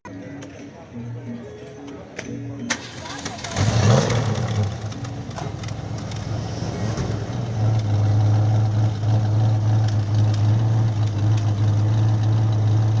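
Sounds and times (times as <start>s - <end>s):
car engine idling: 2.7s - 13.0s.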